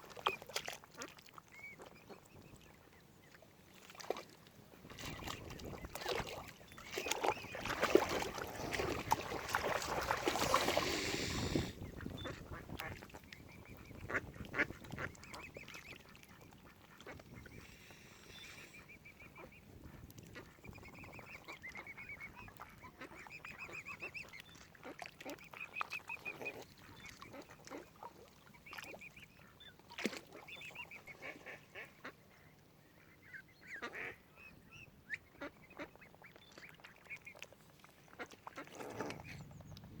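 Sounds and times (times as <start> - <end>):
waterfowl calling: 33.2 - 37.4.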